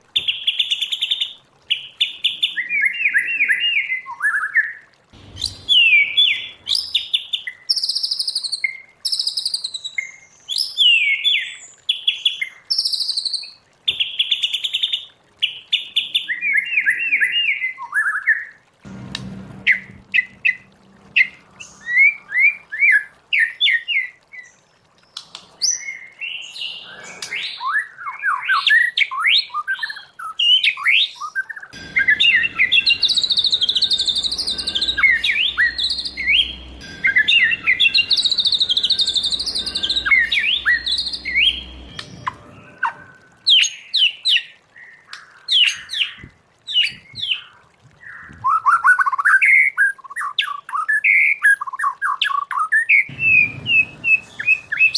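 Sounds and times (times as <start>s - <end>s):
bird singing whistles and trills: 1.7s - 14.4s, 15.4s - 18.5s, 25.6s - 45.0s, 48.0s - 54.9s.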